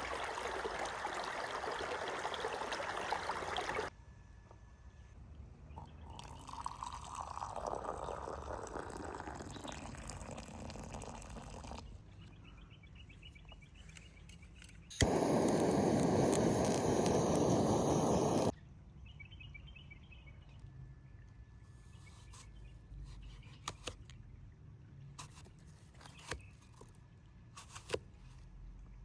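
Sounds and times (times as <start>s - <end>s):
liquid pouring: 0.0s - 3.9s, 5.9s - 11.9s, 15.0s - 18.5s.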